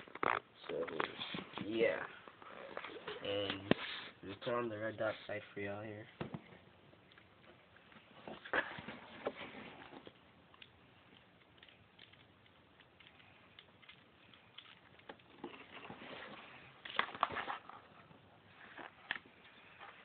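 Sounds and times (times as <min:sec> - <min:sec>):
airsoft gun clicks and rattling: 0:10.6 - 0:15.3.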